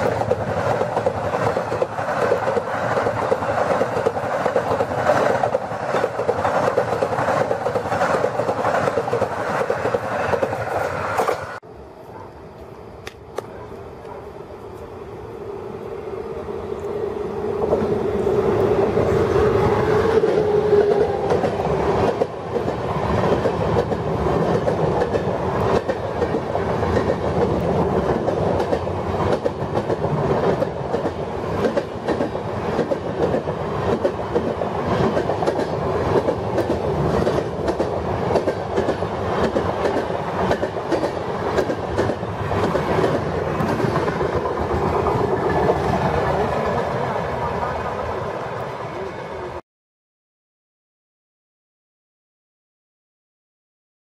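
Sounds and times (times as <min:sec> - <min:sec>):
train wheels clattering over rail joints: 0:20.9 - 0:45.9.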